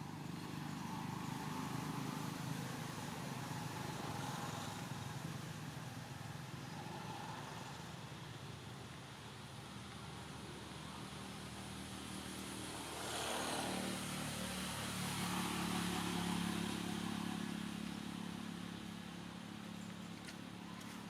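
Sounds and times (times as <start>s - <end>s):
vehicle engine passing by: 12.2s - 21.0s.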